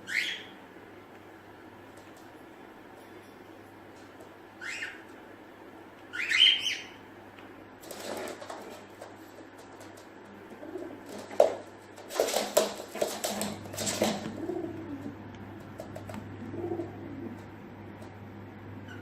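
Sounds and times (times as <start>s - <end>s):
pigeon cooing: 10.4s - 11.3s, 13.2s - 17.6s.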